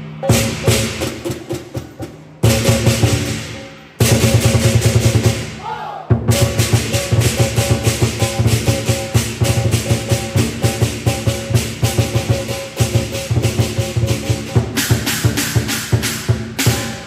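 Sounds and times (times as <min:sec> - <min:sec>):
cymbals clashing: 0:00.0 - 0:17.0
large drum beating: 0:00.2 - 0:17.0.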